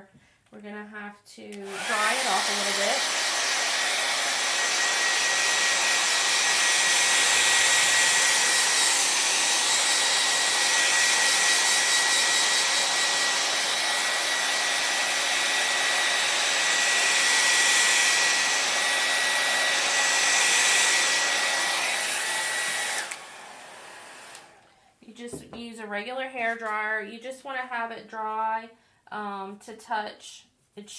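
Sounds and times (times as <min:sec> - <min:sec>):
hair dryer running: 0:01.5 - 0:24.7.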